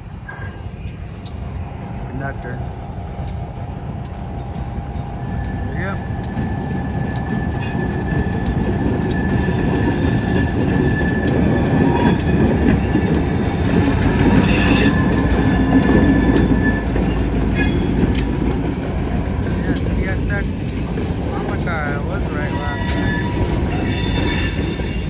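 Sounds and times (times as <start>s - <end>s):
freight cars rumbling on rails: 0.0s - 25.0s
wheels clicking over rail joints: 3.1s - 25.0s
high wheel squeal: 5.0s - 25.0s.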